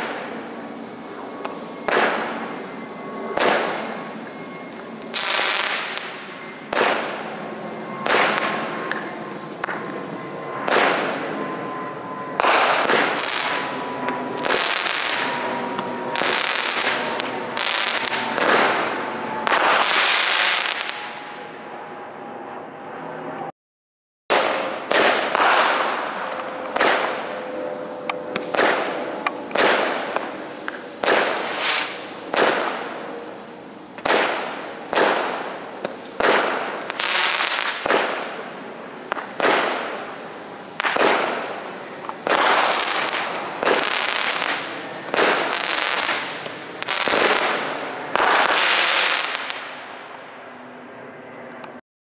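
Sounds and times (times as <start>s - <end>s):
firework shots with hiss: 1.5s - 2.6s, 3.3s - 3.9s, 5.1s - 7.4s, 8.0s - 9.8s, 10.6s - 11.2s, 12.4s - 21.0s, 24.3s - 27.4s, 28.3s - 33.1s, 34.0s - 49.8s.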